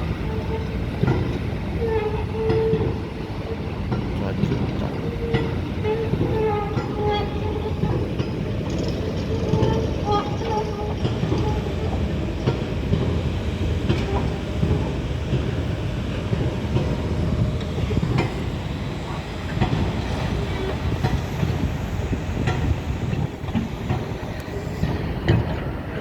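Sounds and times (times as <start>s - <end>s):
heavy machinery rumbling: 3.9s - 8.0s.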